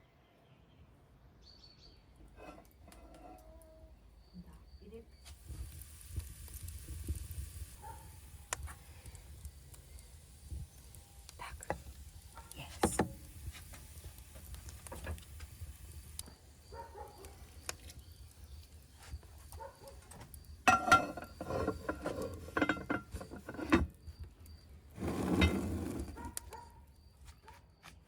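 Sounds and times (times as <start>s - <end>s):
kitchenware knocks and clinks: 20.7s - 23.9s.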